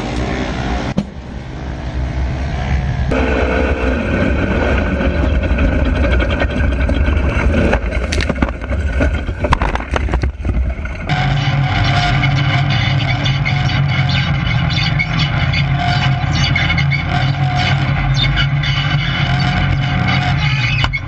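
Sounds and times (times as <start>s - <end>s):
steady hum: 0.0s - 21.0s
vehicle engine running: 0.0s - 21.0s
wind noise: 1.7s - 13.2s.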